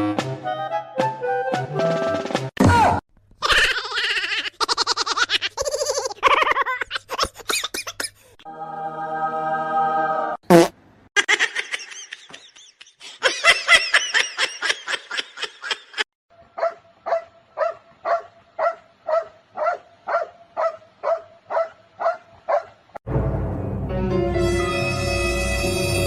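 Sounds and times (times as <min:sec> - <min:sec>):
dog barking: 0:16.5 - 0:22.8.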